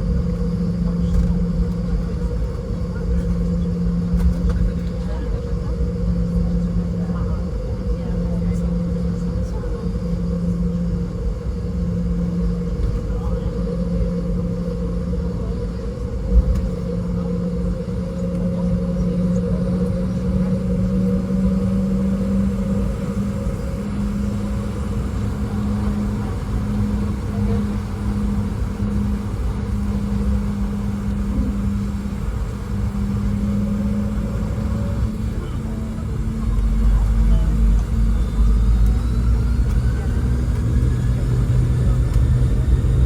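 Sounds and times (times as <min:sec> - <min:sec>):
jet engine hum in cabin: 0:00.0 - 0:43.0.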